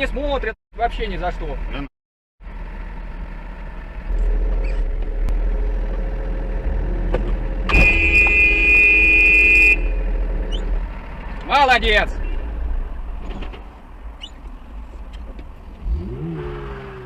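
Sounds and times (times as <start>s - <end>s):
car road noise: 1.0s - 17.0s
car horn: 7.7s - 10.2s.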